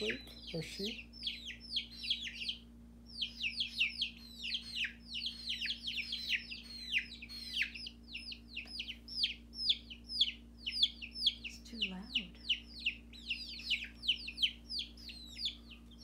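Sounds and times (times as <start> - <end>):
baby chicks peeping: 0.0 - 16.0.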